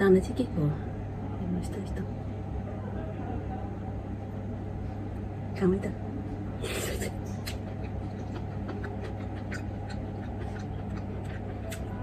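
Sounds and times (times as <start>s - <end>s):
steady low hum: 0.0s - 12.0s
person chewing: 6.8s - 12.0s.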